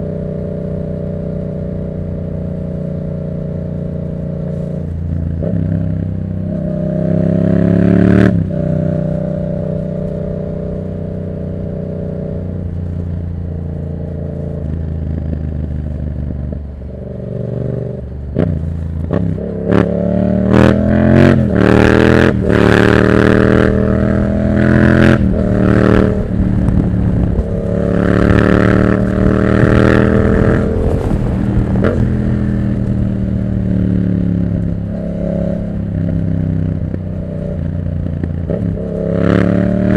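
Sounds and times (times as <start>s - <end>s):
motorcycle engine revving: 0.0s - 39.9s
exhaust cracks: 25.2s - 33.6s.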